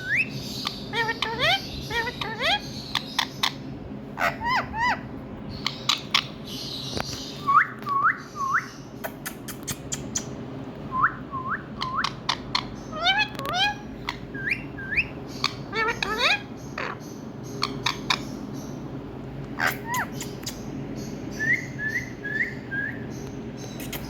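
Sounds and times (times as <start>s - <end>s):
parrot whistled calls: 0.0s - 3.6s, 4.2s - 6.4s, 7.4s - 9.4s, 10.0s - 17.0s, 19.6s - 20.7s, 21.3s - 23.2s
steady low hum: 0.0s - 24.0s.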